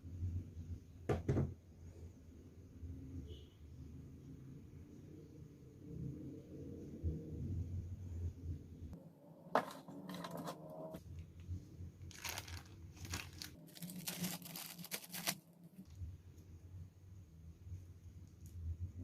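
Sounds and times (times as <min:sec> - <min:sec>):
crinkling rustling handling noise: 0:09.6 - 0:16.0.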